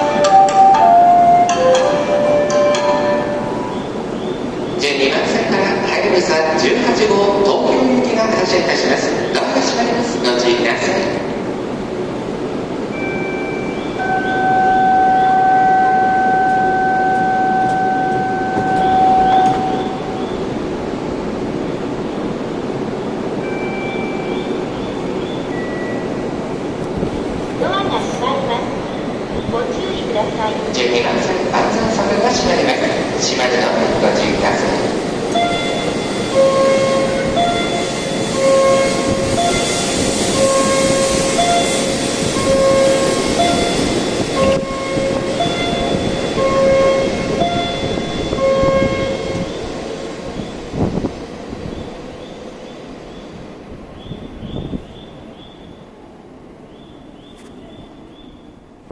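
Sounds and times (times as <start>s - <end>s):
train humming: 0.0s - 58.9s
electronic warning tone: 13.0s - 20.1s, 35.3s - 49.6s.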